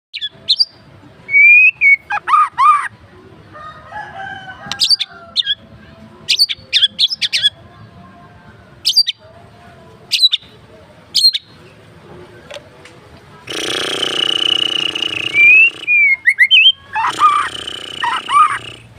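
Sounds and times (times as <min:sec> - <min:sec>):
songbird singing varied song: 0:00.1 - 0:02.8, 0:06.3 - 0:07.6, 0:08.8 - 0:09.2, 0:10.1 - 0:11.6, 0:14.4 - 0:18.8.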